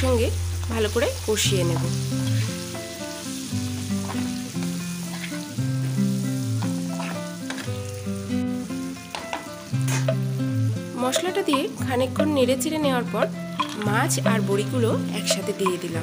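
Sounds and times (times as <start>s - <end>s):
food sizzling in hot oil: 0.0s - 16.0s
slow background melody: 1.6s - 16.0s
metal spatula scraping pan: 5.0s - 5.4s, 6.9s - 7.7s.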